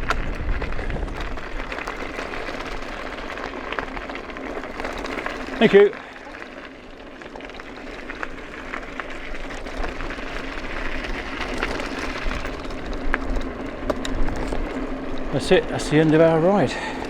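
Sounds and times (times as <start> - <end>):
wind rumbling on microphone: 0.0 - 5.6.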